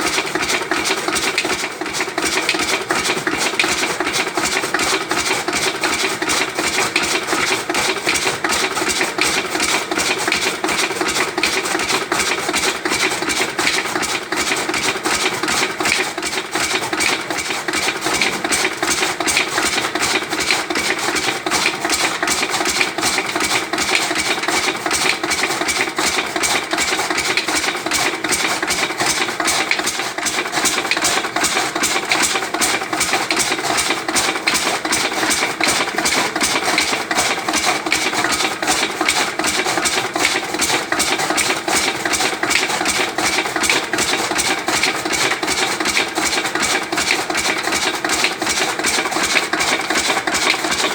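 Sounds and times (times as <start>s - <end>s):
chaff cutter chopping fodder: 0.0s - 50.9s
diesel engine running under load: 0.0s - 50.9s.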